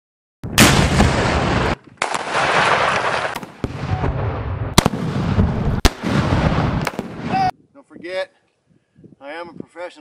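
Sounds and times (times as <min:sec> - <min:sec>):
explosion blasts: 0:00.4 - 0:07.5
explosion rumble: 0:00.4 - 0:07.5.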